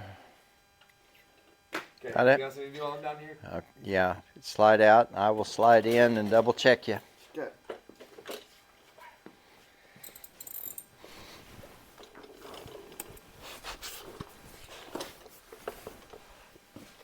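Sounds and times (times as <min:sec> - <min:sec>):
shuffling: 0:11.0 - 0:17.0.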